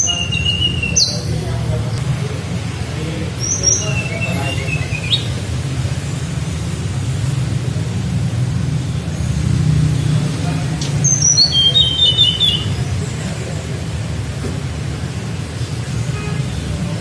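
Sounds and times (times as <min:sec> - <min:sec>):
small bird singing: 0:00.0 - 0:01.5, 0:03.3 - 0:05.5, 0:10.8 - 0:13.0.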